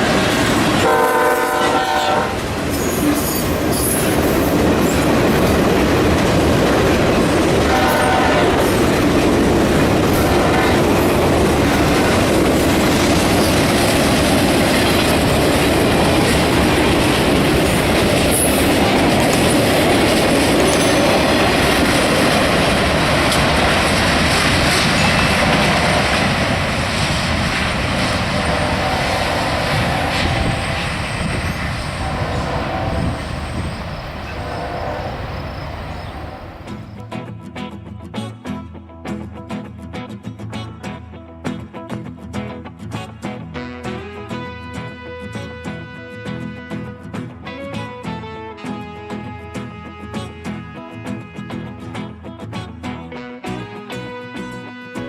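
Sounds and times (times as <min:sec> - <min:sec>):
train wheels clattering on rails: 0:00.0 - 0:37.0.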